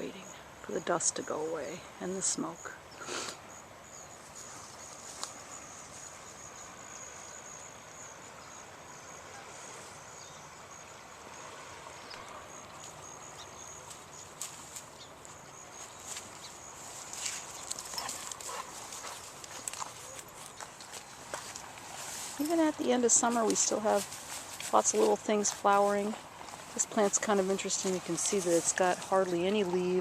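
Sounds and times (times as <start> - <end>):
cricket trilling: 0.0 - 30.0
clicks and rustles: 17.0 - 22.5.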